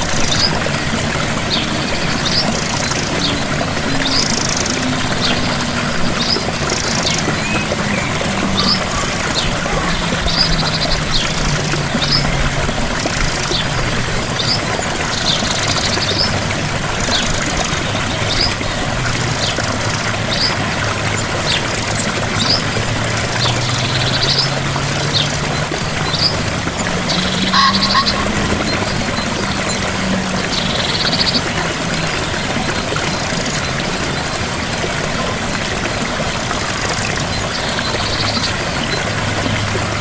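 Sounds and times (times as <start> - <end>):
small waterfall rushing: 0.0 - 40.0
bird chirping: 26.0 - 29.8.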